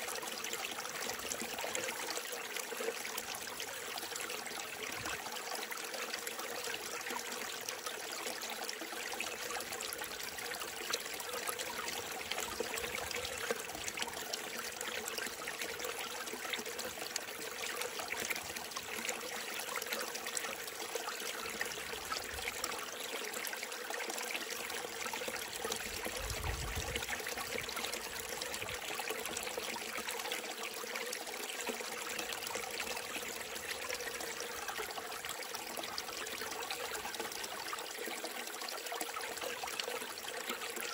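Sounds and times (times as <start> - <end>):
stream splashing over rocks: 8.6 - 40.9.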